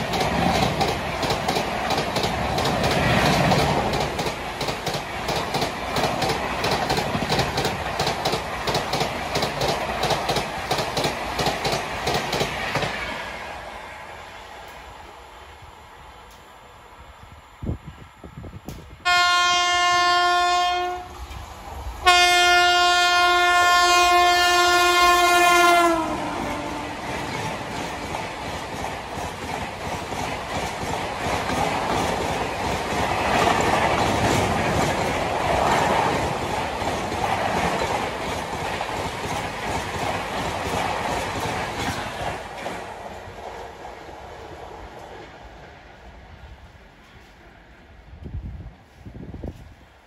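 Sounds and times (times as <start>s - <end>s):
train coaches clickety-clack: 0.0s - 15.1s, 18.6s - 50.0s
locomotive horn blasts: 19.0s - 21.1s, 22.0s - 27.0s.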